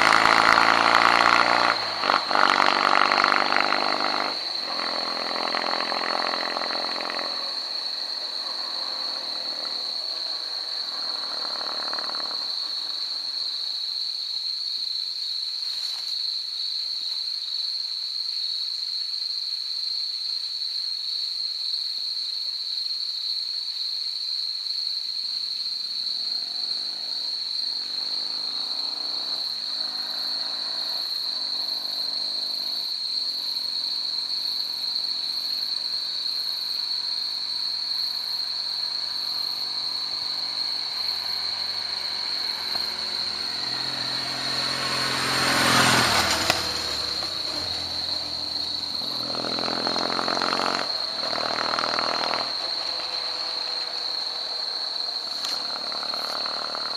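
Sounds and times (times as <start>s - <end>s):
motorcycle engine shifting gears: 0.0s - 7.6s, 39.6s - 54.3s, 55.3s - 56.9s.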